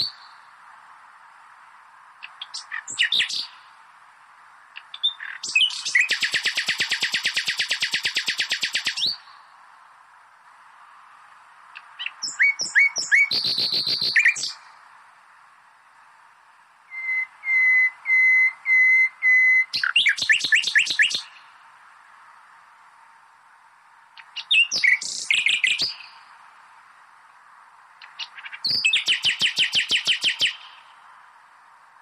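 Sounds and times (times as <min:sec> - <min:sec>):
nightingale singing: 0:00.0 - 0:00.6, 0:02.2 - 0:03.8, 0:04.7 - 0:09.6, 0:11.7 - 0:14.8, 0:16.8 - 0:21.6, 0:24.1 - 0:26.5, 0:28.0 - 0:31.1
faint steady hiss: 0:00.0 - 0:32.0.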